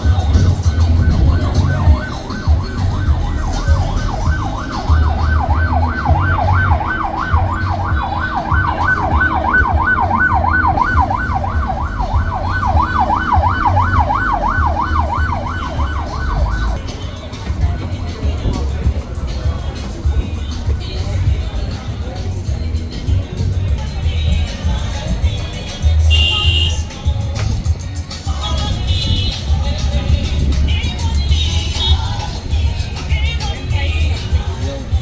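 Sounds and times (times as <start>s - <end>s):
warbling siren tone: 0.0s - 16.8s
deep bass beat: 0.0s - 35.0s.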